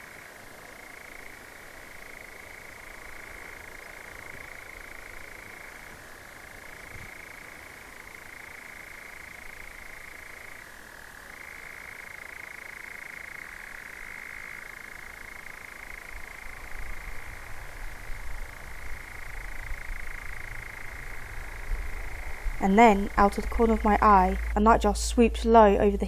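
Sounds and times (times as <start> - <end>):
low rumble: 17.1 - 26.0
nightjar churring trill: 18.6 - 26.0.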